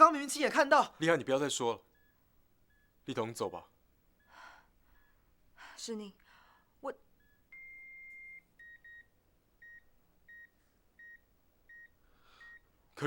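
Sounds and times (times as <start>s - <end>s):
patient monitor alarm beeps: 1.4s - 5.4s, 7.0s - 13.0s.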